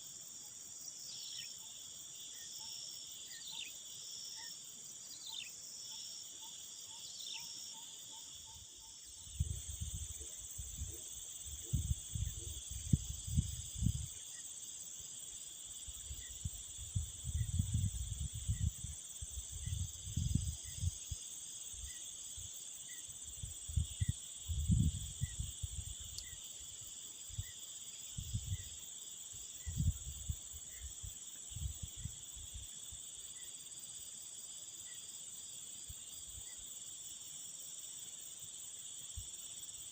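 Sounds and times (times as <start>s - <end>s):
crickets chirping: 0.0s - 39.9s
wind buffeting microphone: 9.4s - 14.1s, 16.4s - 21.0s, 23.7s - 25.8s.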